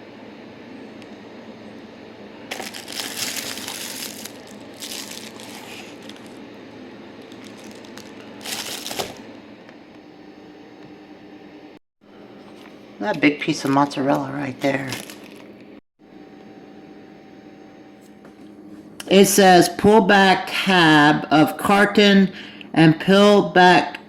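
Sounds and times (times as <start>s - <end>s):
packaging crinkling and rustling: 2.5s - 6.4s, 7.2s - 9.3s, 14.6s - 15.5s.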